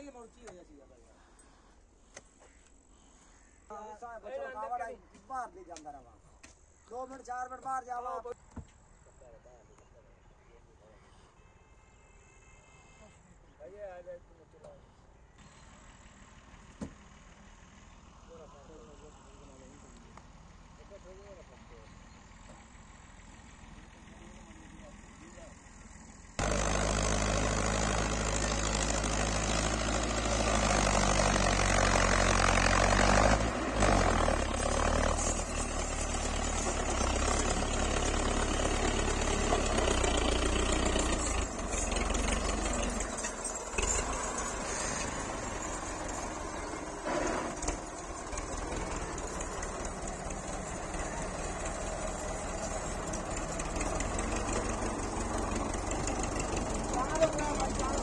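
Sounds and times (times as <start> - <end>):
tractor diesel engine running: 15.2 - 58.0.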